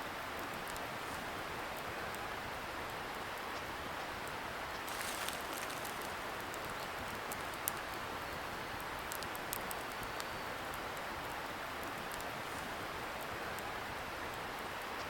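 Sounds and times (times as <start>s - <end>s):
campfire crackling: 4.8s - 13.7s.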